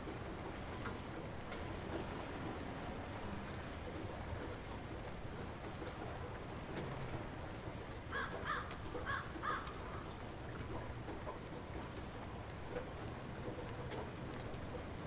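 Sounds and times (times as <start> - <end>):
light rain falling: 0.0 - 15.0
bird calling: 8.2 - 10.1.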